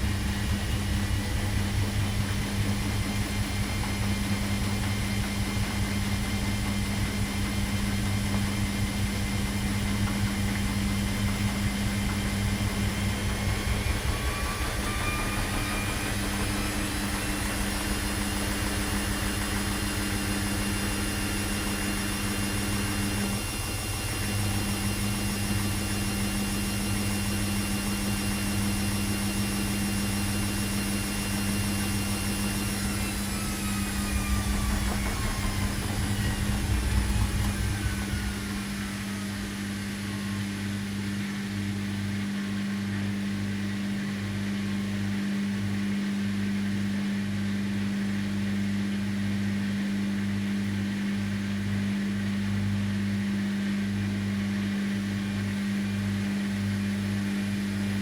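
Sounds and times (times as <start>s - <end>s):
low rumble: 0.0s - 5.8s, 11.0s - 18.5s, 31.9s - 41.1s
washing machine drum whine: 0.0s - 58.0s
washing machine running: 0.0s - 58.0s.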